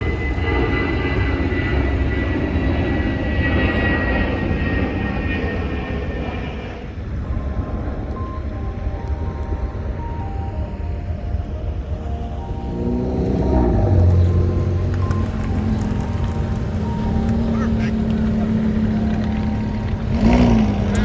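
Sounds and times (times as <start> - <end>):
engine passing with whine: 0.0 - 21.0
low rumble: 0.0 - 21.0
steady stepped tones: 4.6 - 21.0.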